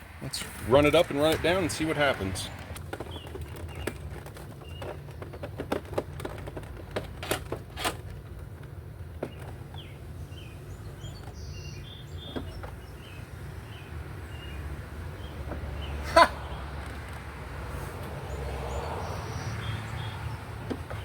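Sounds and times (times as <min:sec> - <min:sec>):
sharp clicks and knocks: 0:02.5 - 0:09.9.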